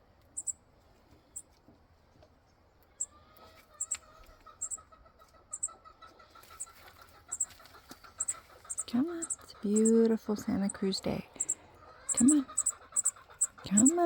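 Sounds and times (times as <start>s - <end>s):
steady pulsing bird trill: 0.4s - 0.6s, 3.8s - 4.0s, 4.6s - 4.8s, 5.5s - 5.8s, 7.3s - 14.0s.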